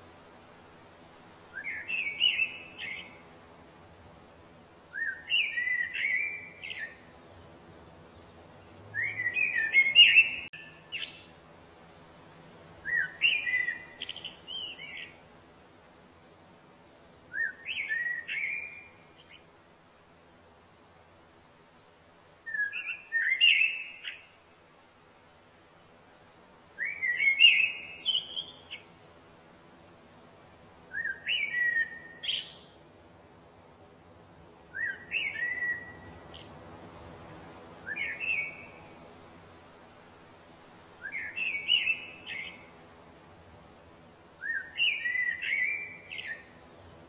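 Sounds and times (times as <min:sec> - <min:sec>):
songbird warbling: 0:01.4 - 0:03.2, 0:04.9 - 0:07.9, 0:09.0 - 0:11.4, 0:12.8 - 0:15.2, 0:17.3 - 0:19.4, 0:22.5 - 0:24.5, 0:26.8 - 0:30.2, 0:30.9 - 0:32.8, 0:34.7 - 0:36.5, 0:37.8 - 0:39.1, 0:40.8 - 0:42.7, 0:44.4 - 0:47.0.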